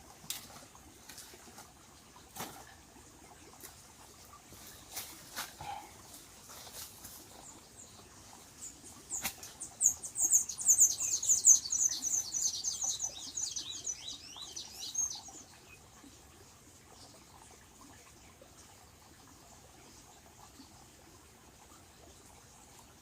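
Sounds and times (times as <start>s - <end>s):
small bird chirping: 7.3s - 15.8s.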